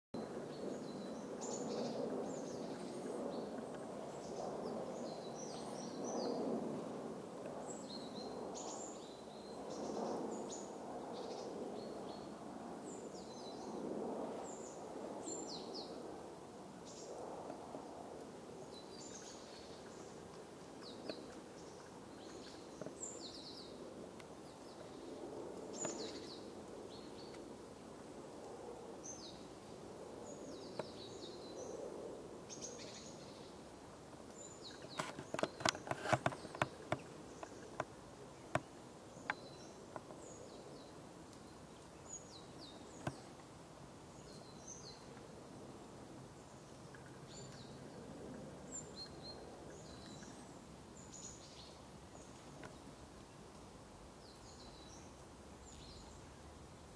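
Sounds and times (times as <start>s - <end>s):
low outdoor background: 14.3s - 56.9s
small birds chirping: 34.3s - 43.4s.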